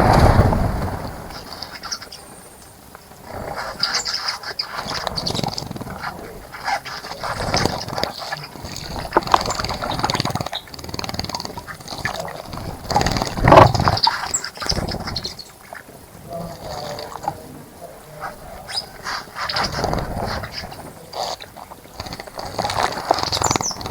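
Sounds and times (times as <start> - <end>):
bird splashing in water: 0.0 - 2.6.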